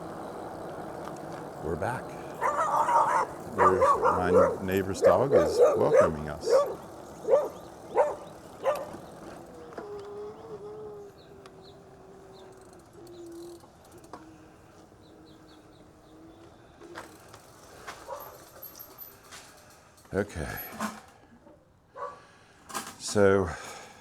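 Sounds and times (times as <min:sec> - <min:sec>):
dog barking: 0:02.4 - 0:09.0, 0:18.1 - 0:18.4, 0:22.0 - 0:22.2
dog howling: 0:02.4 - 0:09.0.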